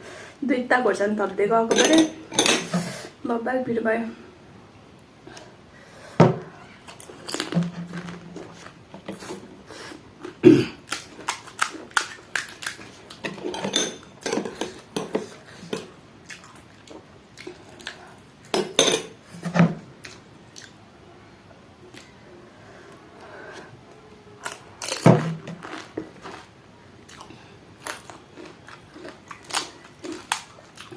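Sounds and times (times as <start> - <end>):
plate and utensils clinking: 1.7 - 2.7, 13.3 - 15.2
crunching and chewing: 6.7 - 18.6, 19.9 - 20.9, 24.4 - 30.9.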